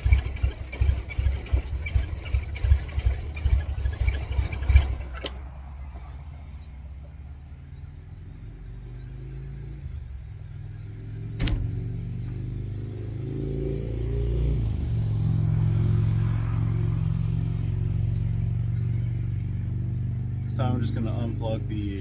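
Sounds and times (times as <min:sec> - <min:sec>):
car engine running: 0:00.0 - 0:08.6, 0:09.8 - 0:13.2, 0:14.6 - 0:22.0
sharp click: 0:11.4 - 0:11.7.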